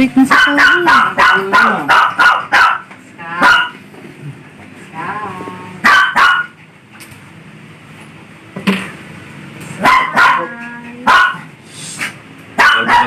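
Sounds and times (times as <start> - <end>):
dog barking: 0.2 - 3.8, 5.8 - 6.6, 9.8 - 11.5, 12.6 - 13.0.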